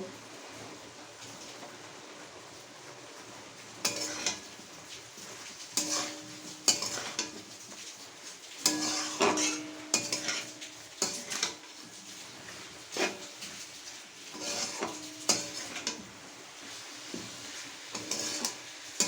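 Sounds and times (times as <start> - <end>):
faint sizzle: 0.0 - 19.0
spatula scraping a pan: 3.8 - 19.0.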